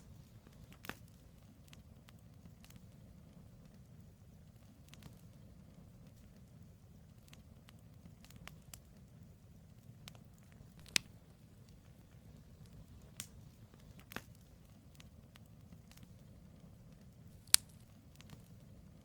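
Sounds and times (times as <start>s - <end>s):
burning logs crackling and popping: 0.0s - 19.0s
low rumble of flame: 0.0s - 19.0s.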